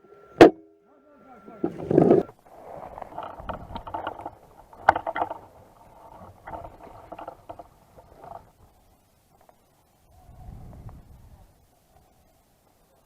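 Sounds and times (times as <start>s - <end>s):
rustling and crunching: 1.3s - 9.7s.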